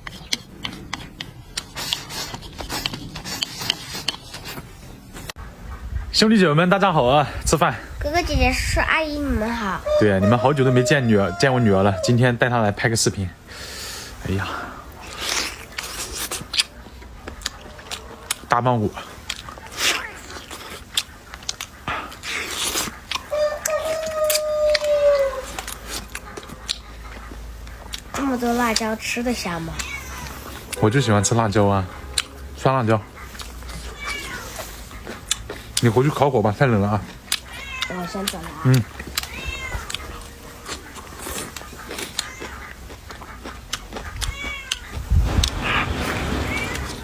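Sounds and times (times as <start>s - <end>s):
gnawing on a bone: 0.0s - 4.8s, 36.7s - 44.9s
cat meowing: 29.7s - 30.8s, 33.8s - 34.6s, 37.5s - 40.3s, 44.2s - 45.0s.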